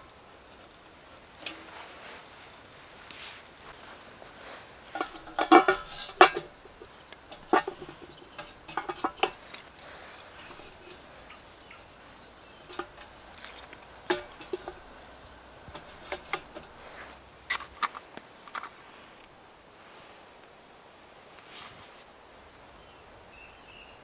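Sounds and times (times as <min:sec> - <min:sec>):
knocks and clinks: 0:04.8 - 0:11.9, 0:12.6 - 0:17.9.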